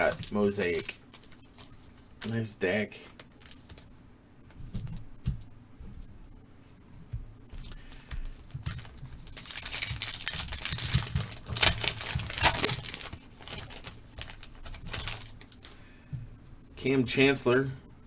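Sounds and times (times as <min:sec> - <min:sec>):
card pack tearing open: 0:00.0 - 0:02.4, 0:08.6 - 0:15.8
plastic wrapper crinkling: 0:00.0 - 0:03.9, 0:07.7 - 0:15.9.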